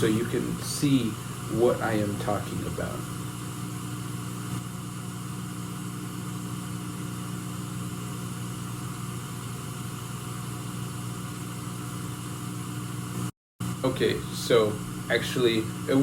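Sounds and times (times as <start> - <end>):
even hiss: 0.0 - 3.2, 13.8 - 16.0.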